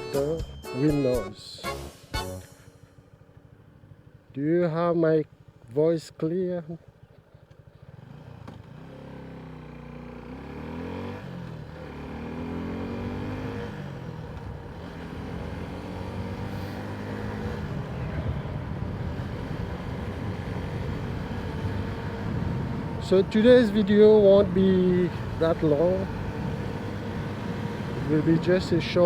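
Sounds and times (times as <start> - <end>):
motorcycle engine accelerating: 6.8 - 29.0.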